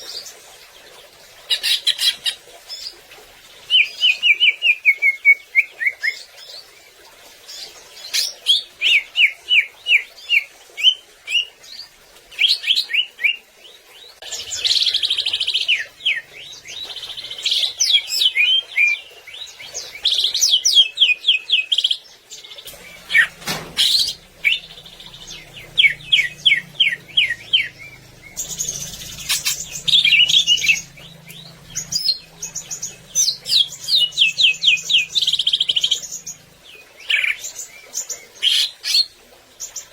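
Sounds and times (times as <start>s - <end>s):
bird chirps and trills: 7.5s - 39.9s
faint low hum: 22.7s - 36.9s.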